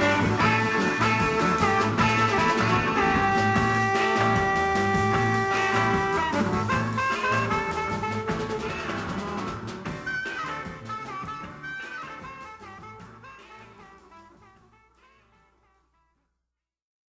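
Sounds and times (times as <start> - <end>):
instrumental band music: 0.0 - 15.4.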